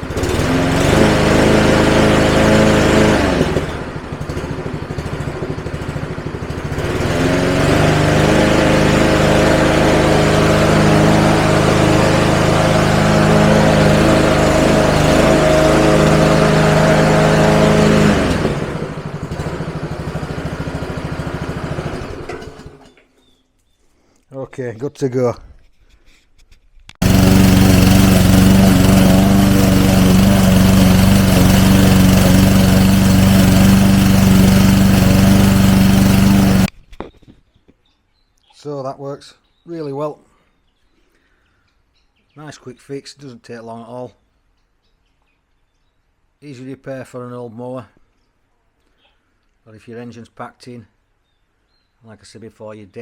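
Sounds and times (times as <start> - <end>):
lawnmower engine revving and idling: 0.0 - 23.0, 27.0 - 36.7.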